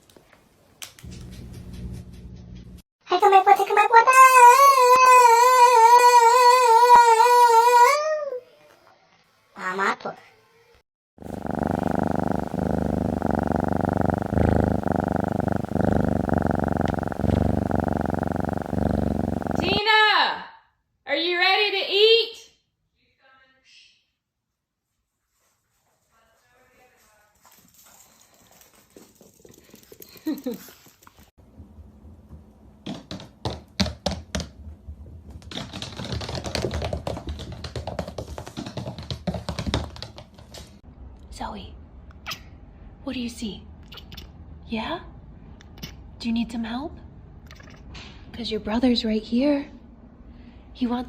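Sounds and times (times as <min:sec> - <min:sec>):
cat purring: 0:11.2 - 0:19.8.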